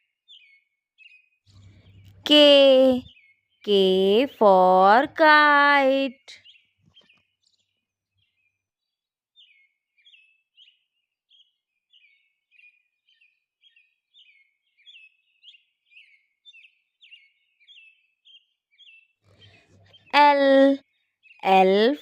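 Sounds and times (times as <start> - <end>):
faint bird chirping: 0.0 - 22.0.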